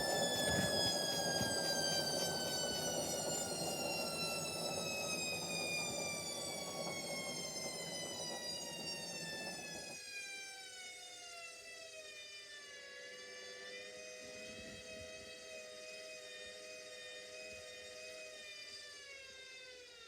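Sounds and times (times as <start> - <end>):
washing machine drum whine: 0.0 - 10.0.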